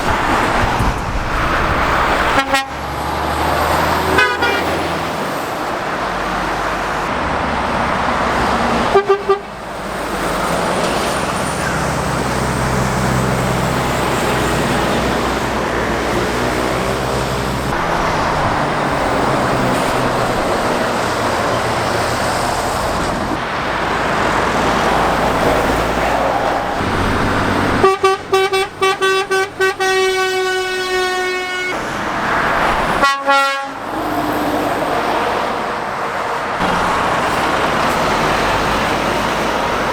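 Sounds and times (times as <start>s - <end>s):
heavy road traffic: 0.0s - 39.9s
lorry engine: 0.0s - 39.9s
vehicle horn tooting: 2.3s - 2.8s, 4.1s - 4.8s, 8.9s - 9.5s, 27.8s - 31.8s, 33.0s - 33.8s.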